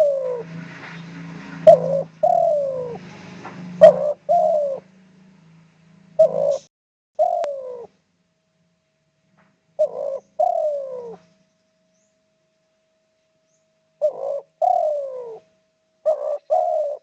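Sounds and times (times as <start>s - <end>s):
dove cooing: 0.0s - 0.6s, 1.5s - 4.9s, 6.2s - 7.9s, 9.8s - 11.3s, 14.0s - 17.0s.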